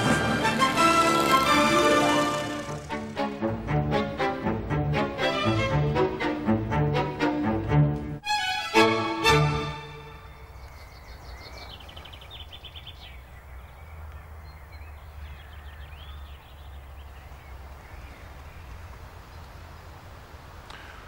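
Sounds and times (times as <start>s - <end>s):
birds chattering and chirping: 10.4s - 21.0s.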